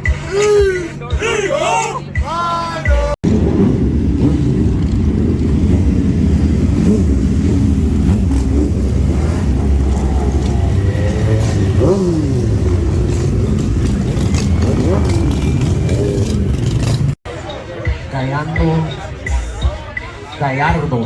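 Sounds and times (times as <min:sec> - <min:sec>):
motorcycle engine rumbling: 0:02.0 - 0:17.2.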